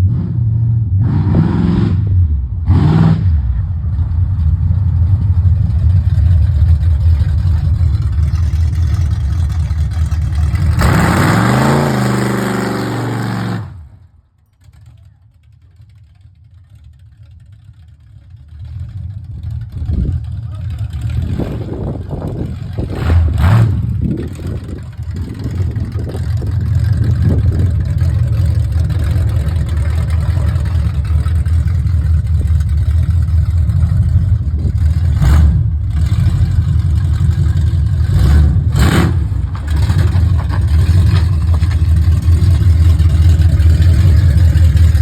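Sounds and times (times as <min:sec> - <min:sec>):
engine running steadily: 0:01.0 - 0:45.0.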